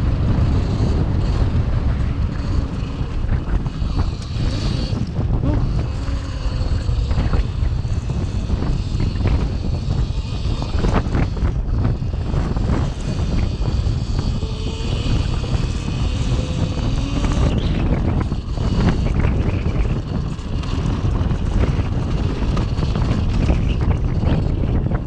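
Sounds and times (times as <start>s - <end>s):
electric motor whine: 0.0s - 25.0s
wind buffeting microphone: 0.0s - 25.0s.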